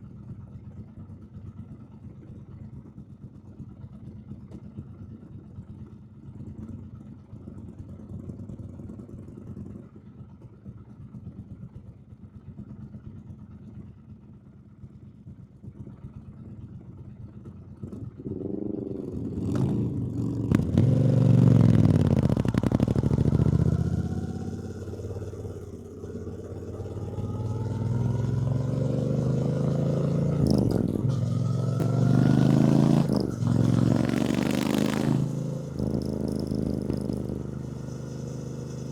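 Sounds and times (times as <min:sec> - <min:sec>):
motorcycle engine accelerating: 0:17.7 - 0:38.9.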